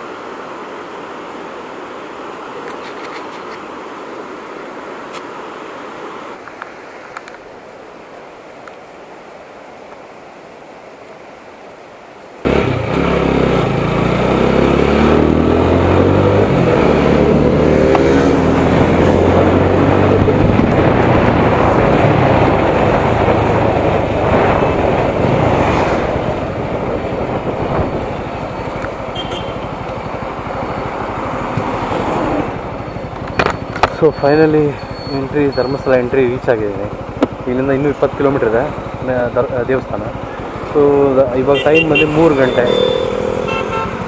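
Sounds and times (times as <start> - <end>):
road noise: 0.0 - 44.0
motorcycle engine pulling hard: 12.5 - 44.0
wind rushing over microphone: 15.3 - 35.6.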